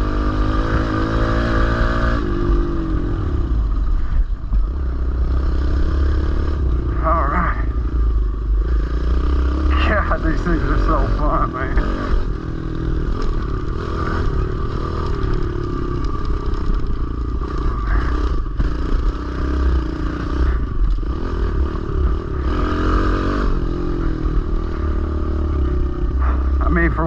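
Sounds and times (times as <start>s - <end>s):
small motorbike engine revving: 8.6s - 26.9s.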